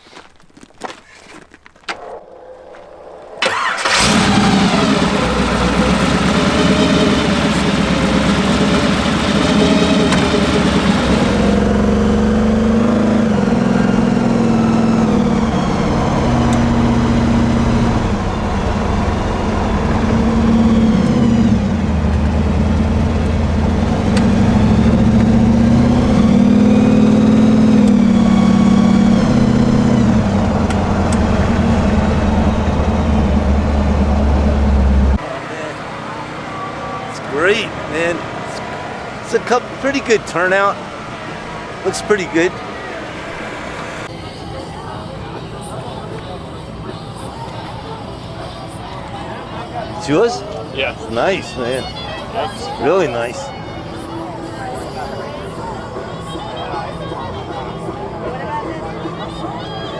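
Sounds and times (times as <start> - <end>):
car engine starting and revving: 3.4 - 44.1.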